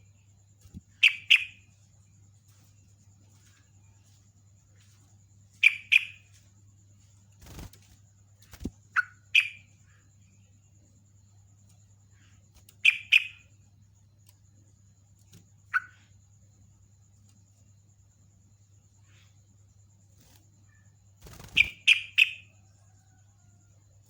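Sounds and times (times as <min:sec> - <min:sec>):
bulbul chirping: 0:00.9 - 0:01.7, 0:05.6 - 0:06.4, 0:08.8 - 0:09.8, 0:12.7 - 0:13.5, 0:15.6 - 0:16.1, 0:21.3 - 0:22.5.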